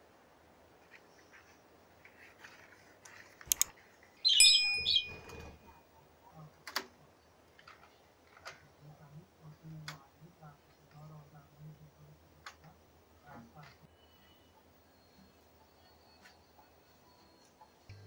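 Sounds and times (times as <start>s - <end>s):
light clicks: 3.4s - 3.7s
bird chirping loudly: 4.2s - 5.6s.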